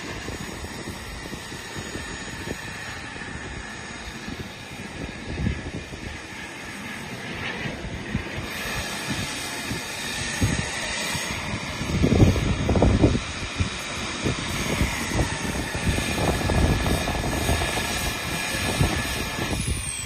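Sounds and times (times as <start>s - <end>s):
steady rushing noise: 0.0s - 20.0s
turbine whine: 0.0s - 20.0s.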